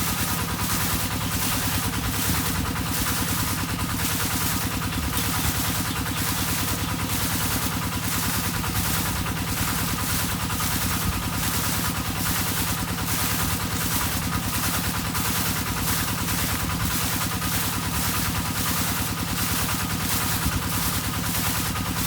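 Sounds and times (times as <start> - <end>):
water pump engine humming: 0.0 - 22.0.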